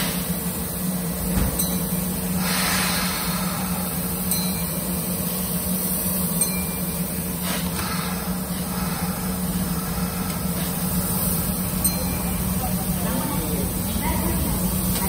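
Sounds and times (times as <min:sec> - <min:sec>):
train equipment humming: 0:00.0 - 0:15.0
brief hiss: 0:02.4 - 0:04.0.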